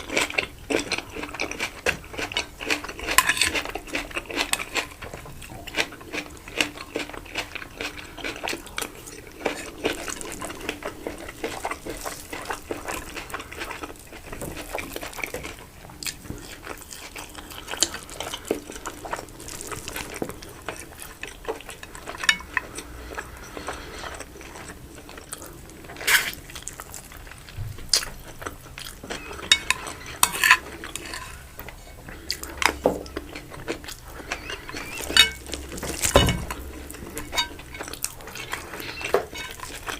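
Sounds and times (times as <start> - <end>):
cutlery clinking on a plate: 3.0 - 3.6, 22.1 - 22.7, 29.1 - 31.4, 34.5 - 39.9.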